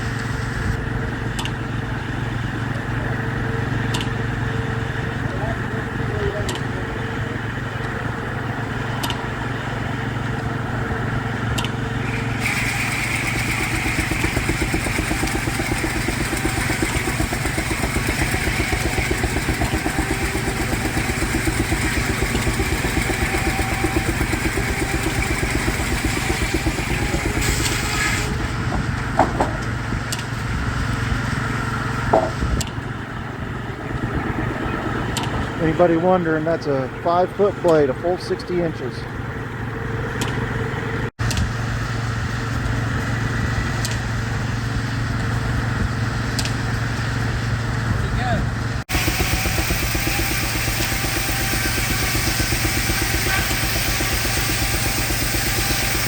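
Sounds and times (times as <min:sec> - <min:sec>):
circular saw blade cutting log: 0:11.6 - 0:30.2, 0:48.9 - 0:56.0
sharp knocks: 0:28.7 - 0:29.7, 0:32.1 - 0:32.4.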